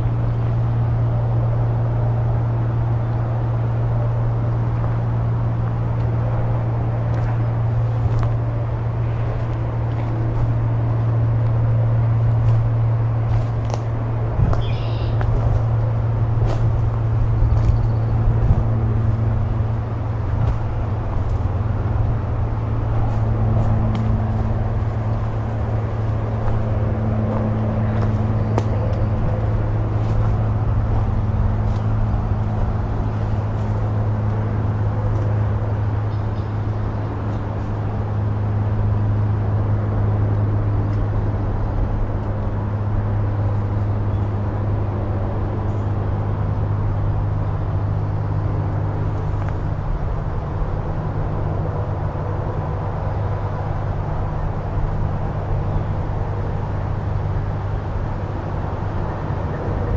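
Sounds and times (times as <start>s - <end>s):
road traffic rumble: 0.0s - 59.9s
footsteps crunching on trail: 5.6s - 38.5s, 49.0s - 49.8s.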